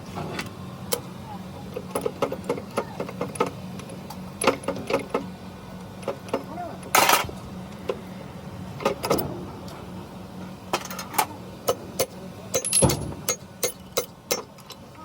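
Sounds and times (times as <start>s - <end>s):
steady low hum: 0.0s - 15.0s
tools and metal parts clicking: 10.8s - 14.8s.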